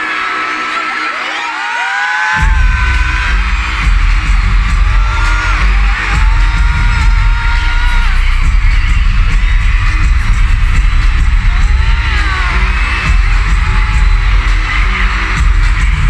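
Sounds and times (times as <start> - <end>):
audience shouting and screaming: 0.0 - 16.0
live pop song over sound system: 0.0 - 16.0.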